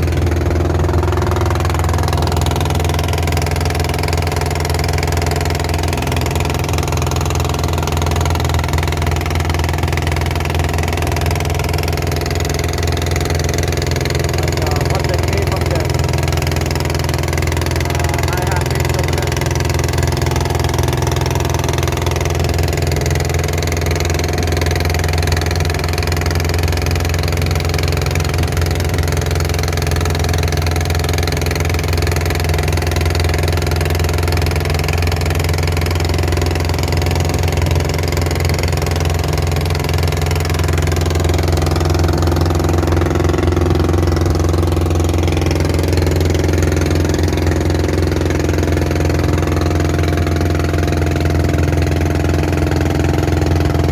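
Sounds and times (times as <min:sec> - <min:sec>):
boat engine droning: 0:00.0 - 0:53.9.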